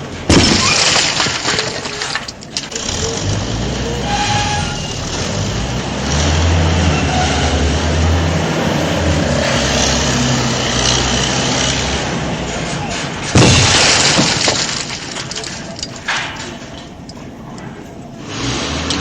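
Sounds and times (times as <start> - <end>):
engine-like drone with hiss: 2.8 - 12.7.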